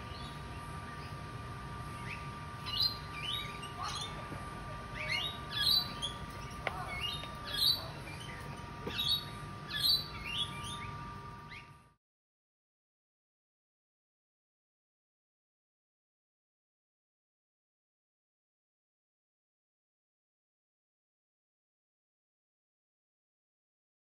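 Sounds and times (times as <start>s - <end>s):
birds chirping: 0.0s - 11.8s.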